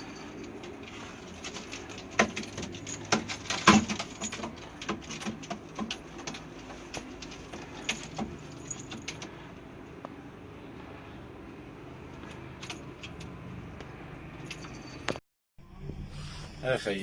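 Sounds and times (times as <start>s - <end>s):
pigeons tapping and scuffling: 0.0s - 10.2s.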